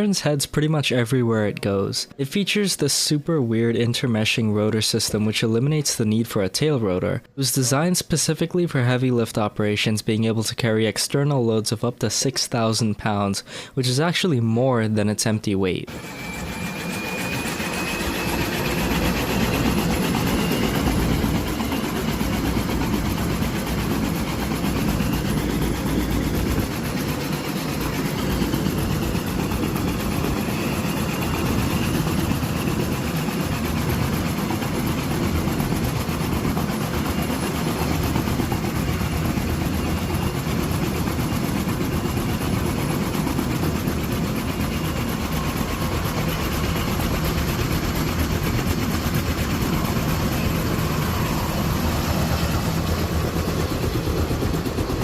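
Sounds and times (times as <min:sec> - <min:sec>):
helicopter running: 0:15.9 - 0:55.0.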